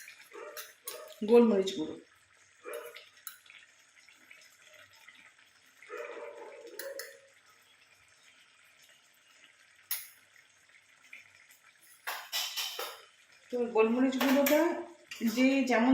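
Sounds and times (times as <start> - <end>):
curry sizzling and bubbling in pan: 0.0 - 15.9.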